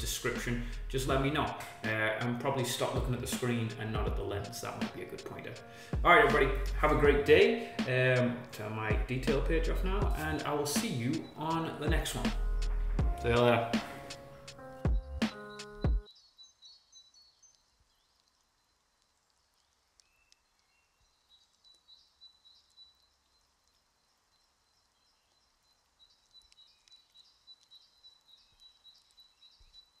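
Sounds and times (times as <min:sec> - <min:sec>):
outro music: 0:00.0 - 0:16.1
faint bird chirping: 0:09.6 - 0:30.0.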